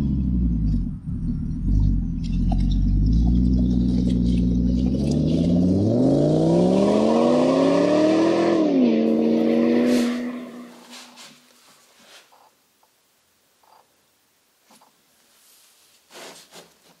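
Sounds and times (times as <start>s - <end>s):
engine revving: 0.0s - 10.8s.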